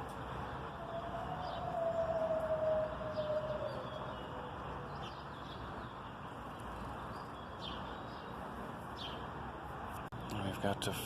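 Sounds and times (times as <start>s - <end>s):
city background noise: 0.0s - 11.0s
siren: 0.7s - 5.0s.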